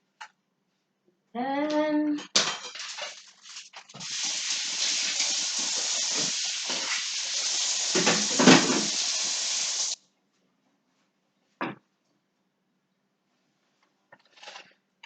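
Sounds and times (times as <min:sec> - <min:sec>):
steady hiss: 0:04.0 - 0:10.0.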